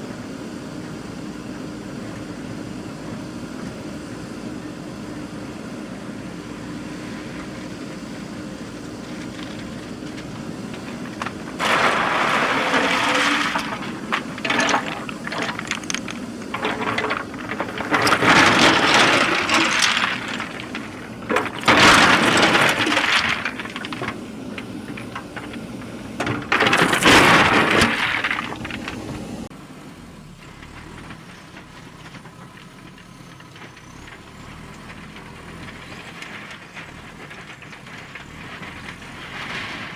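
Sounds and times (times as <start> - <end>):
diesel engine running: 0.0 - 39.9
earth and stones crunching: 6.9 - 29.5.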